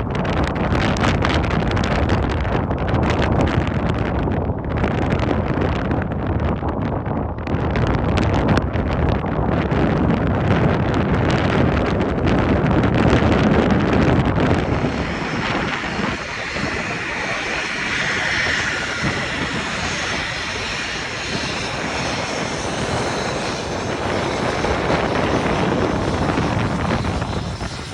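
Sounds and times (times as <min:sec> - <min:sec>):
jet engines roaring: 0:10.8 - 0:27.9.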